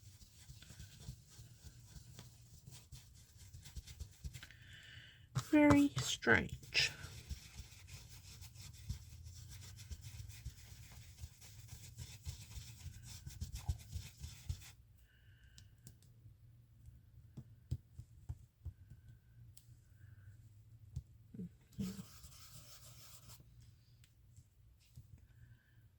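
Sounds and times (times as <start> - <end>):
scratchy rubbing on paper: 0.0 - 4.5, 5.4 - 14.8, 21.7 - 23.4.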